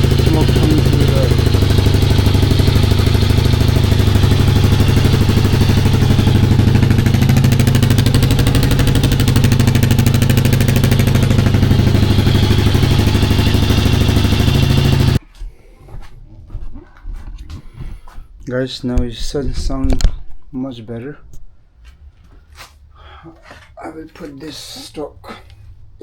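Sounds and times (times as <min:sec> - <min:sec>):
motorcycle engine idling: 0:00.0 - 0:15.2.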